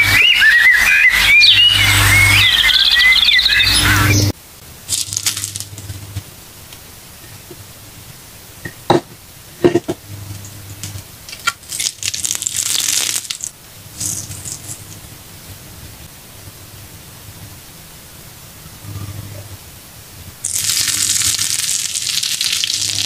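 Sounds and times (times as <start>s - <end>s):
meat sizzling in oil: 4.8s - 6.2s, 10.1s - 15.1s, 20.4s - 23.0s.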